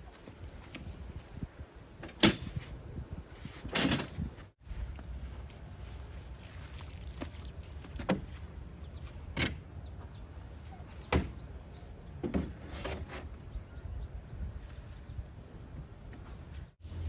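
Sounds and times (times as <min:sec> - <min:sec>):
knocks and clunks: 0:03.6 - 0:04.4, 0:12.2 - 0:13.3.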